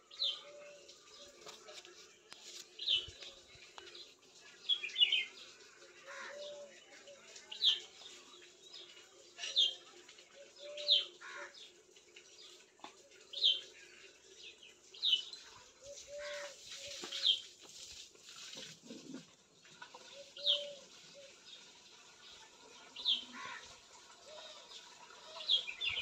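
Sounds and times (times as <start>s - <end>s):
birds chirping: 0.0s - 6.8s, 20.1s - 26.0s.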